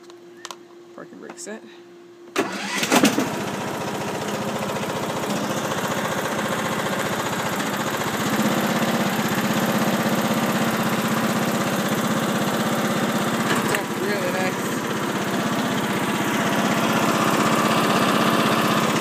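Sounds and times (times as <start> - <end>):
engine cranking: 2.4 - 4.4
lawn tractor engine running: 2.4 - 19.0.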